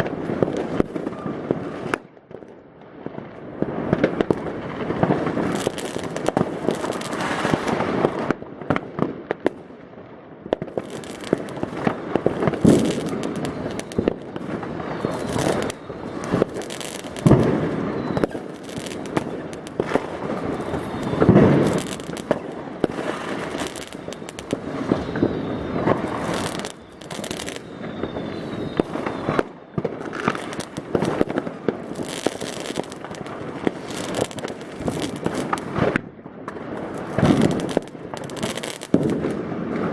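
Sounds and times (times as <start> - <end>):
firecrackers crackling: 0.0 - 39.9
loud fireworks booms: 0.0 - 39.9
fireworks rocket bangs: 10.6 - 39.9.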